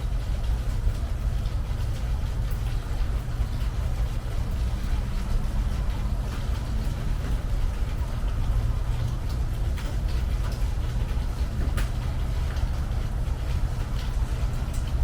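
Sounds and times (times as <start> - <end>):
rain on a metal roof: 0.0 - 15.0
drip ticks: 0.4 - 15.0.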